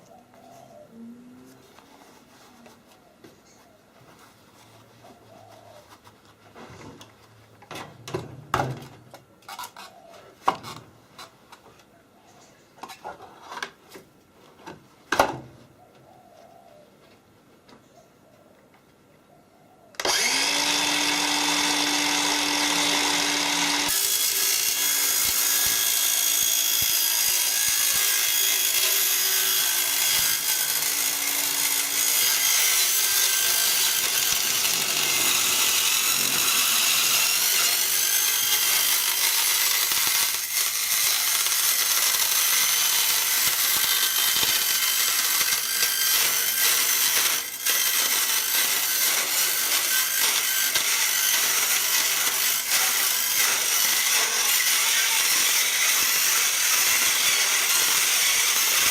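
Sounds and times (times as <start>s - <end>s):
electric power tool running: 20.0s - 58.9s.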